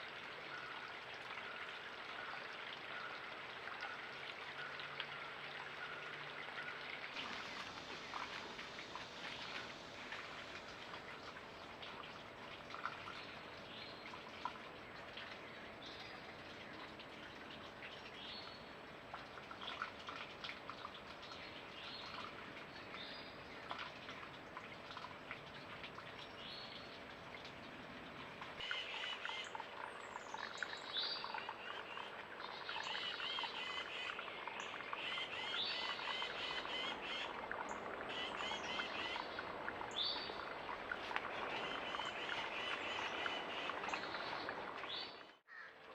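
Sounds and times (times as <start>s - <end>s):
mountain creek rushing: 6.1s - 12.4s, 34.9s - 45.6s.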